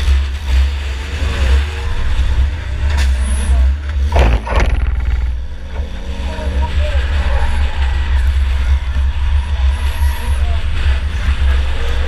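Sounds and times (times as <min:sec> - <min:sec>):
race car engine rumbling: 0:00.0 - 0:12.0
sharp knocking clatter: 0:04.1 - 0:05.4.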